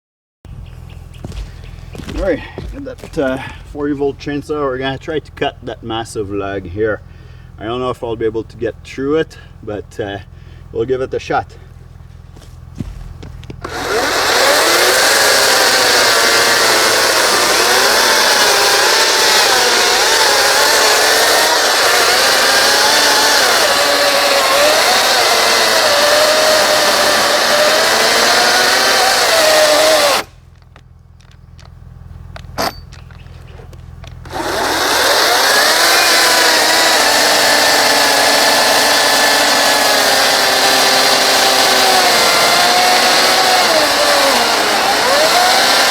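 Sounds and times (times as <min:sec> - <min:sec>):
chainsaw cutting log: 0:01.2 - 0:03.9, 0:12.4 - 0:30.6, 0:34.0 - 0:45.9.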